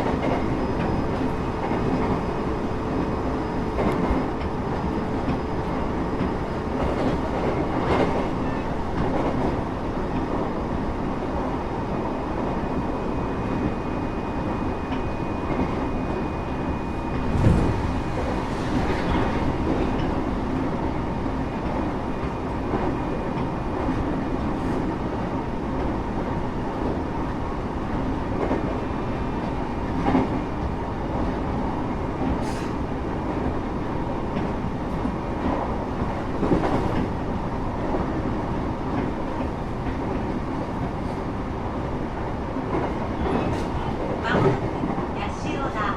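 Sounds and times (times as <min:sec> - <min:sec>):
train wheels rumbling on rails: 0:00.0 - 0:45.9.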